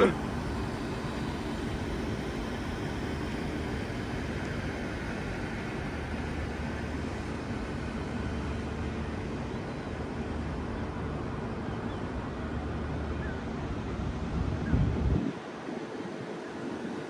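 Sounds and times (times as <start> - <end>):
wind buffeting microphone: 13.8 - 17.0.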